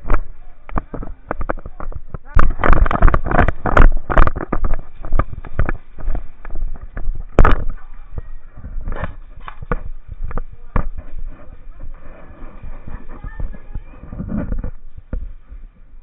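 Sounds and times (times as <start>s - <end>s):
sharp crack: 0.0s - 7.9s
irregular knocks and clicks: 0.0s - 11.3s.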